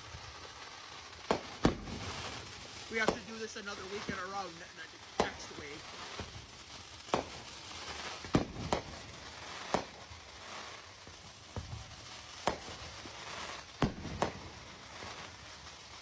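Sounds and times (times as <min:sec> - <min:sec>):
rain hissing: 0:00.0 - 0:16.0
distant fireworks bangs: 0:01.0 - 0:16.0.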